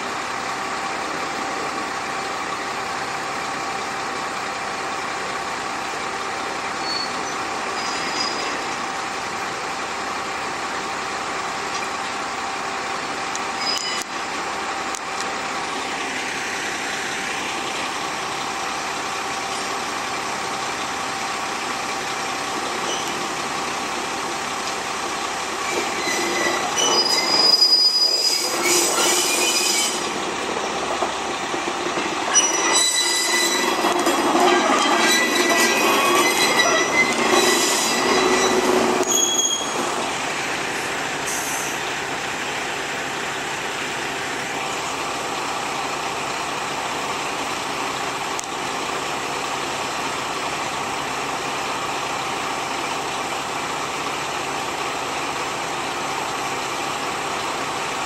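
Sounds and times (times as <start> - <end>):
diesel railcar engine running: 0.0 - 58.0
wheels squealing on track: 6.8 - 8.8, 13.6 - 14.2, 22.6 - 23.4, 25.6 - 30.2, 32.2 - 41.9.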